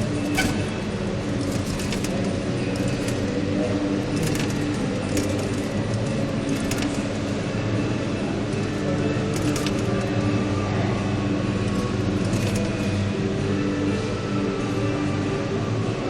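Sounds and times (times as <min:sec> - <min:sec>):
metallic clicks and jingles: 0:00.0 - 0:07.4, 0:08.6 - 0:10.2
arcade machines humming: 0:00.0 - 0:16.0.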